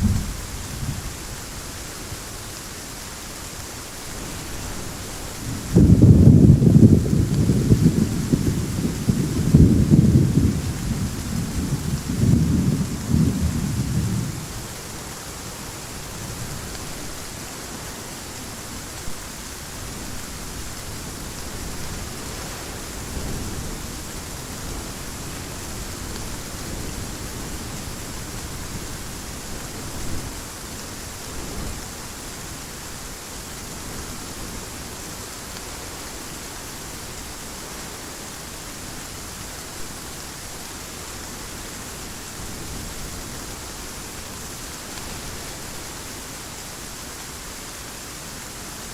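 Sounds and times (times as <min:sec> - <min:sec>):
thunder rumble: 0:00.0 - 0:01.8, 0:04.3 - 0:14.9
heavy rain hiss: 0:00.0 - 0:48.9.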